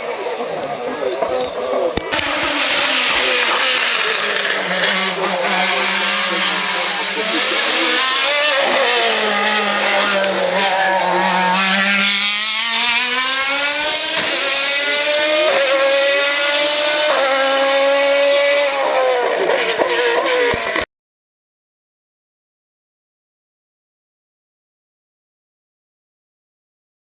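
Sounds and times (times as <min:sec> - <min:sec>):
race car engine accelerating: 0:01.3 - 0:20.8.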